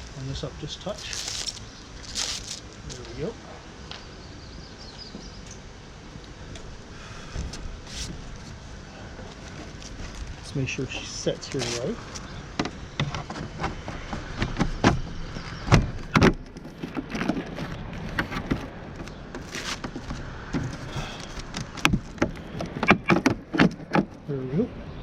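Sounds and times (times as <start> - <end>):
windshield clicking and knocking: 11.5 - 24.2.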